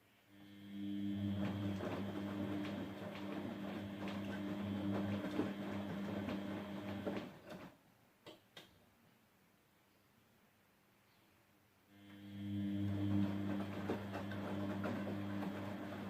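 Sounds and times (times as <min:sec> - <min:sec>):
washing machine drum turning: 0:01.3 - 0:07.6.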